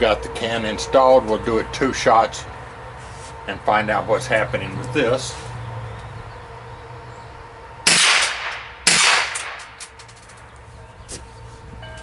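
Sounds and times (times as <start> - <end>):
rifle shots with echo: 7.8 - 9.9.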